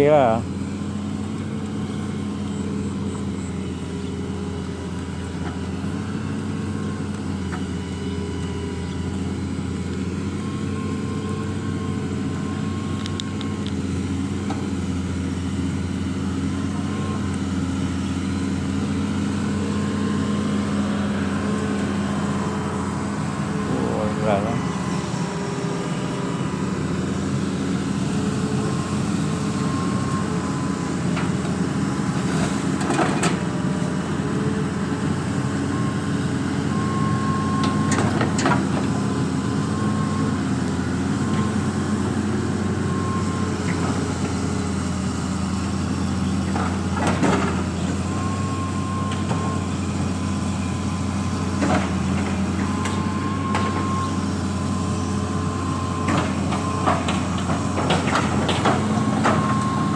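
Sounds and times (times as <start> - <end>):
drain-cleaning machine engine running: 0.0 - 59.9.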